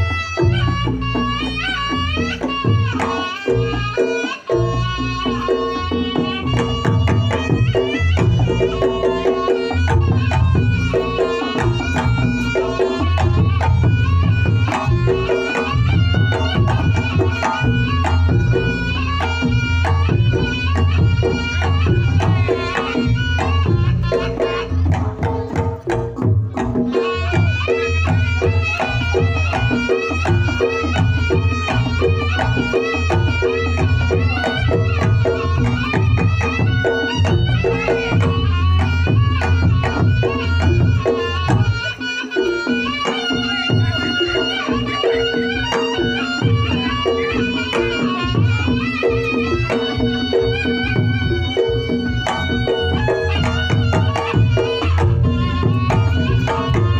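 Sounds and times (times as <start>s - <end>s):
hand drumming: 0.0s - 56.9s
shawm melody: 0.0s - 56.9s.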